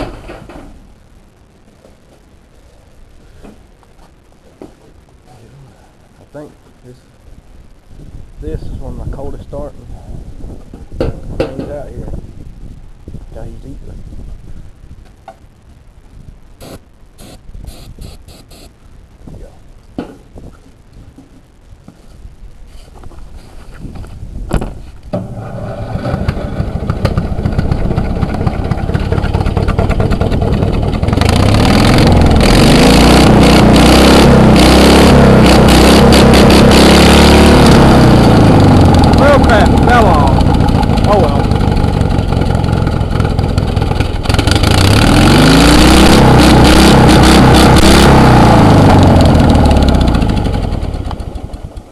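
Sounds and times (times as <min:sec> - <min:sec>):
string trimmer engine running: 0:26.1 - 0:46.2, 0:47.4 - 0:51.8.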